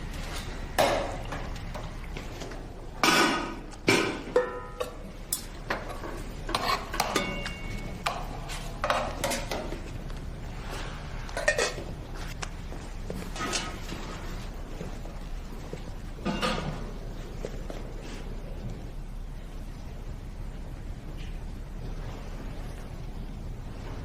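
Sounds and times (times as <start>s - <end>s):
dishes and utensils clinking: 3.0s - 10.0s, 10.6s - 12.3s, 13.2s - 14.4s, 16.2s - 17.1s.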